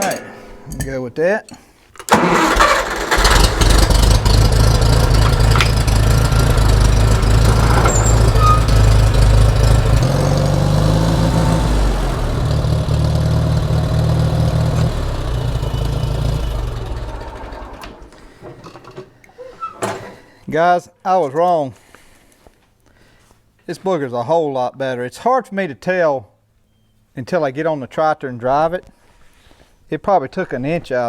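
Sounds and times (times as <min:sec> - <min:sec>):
tractor engine running: 0:02.1 - 0:18.2.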